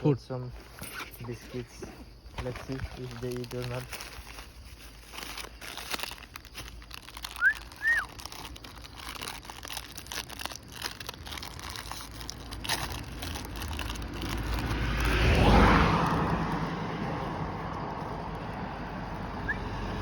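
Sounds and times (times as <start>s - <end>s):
plastic wrapper crinkling: 2.4s - 16.5s.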